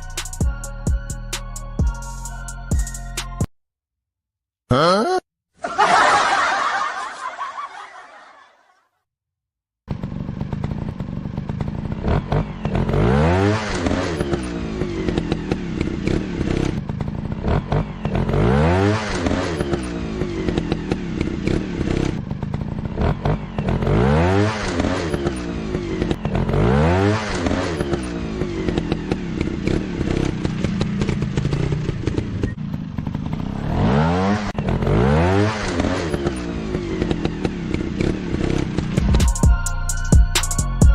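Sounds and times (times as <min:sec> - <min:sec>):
dirt bike engine revving: 0:09.9 - 0:39.1.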